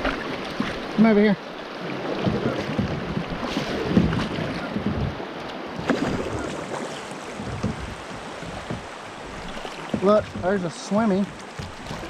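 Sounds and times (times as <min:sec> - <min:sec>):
water splashing and lapping: 0:00.0 - 0:12.0
short knocks: 0:07.3 - 0:10.6.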